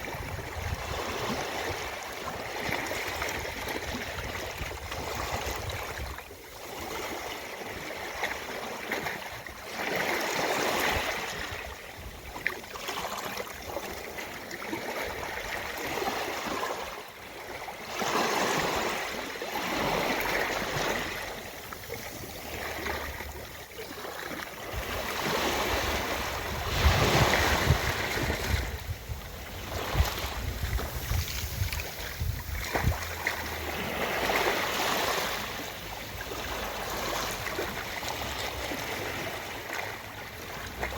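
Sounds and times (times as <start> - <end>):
ocean surf washing onto beach: 24.7 - 40.1.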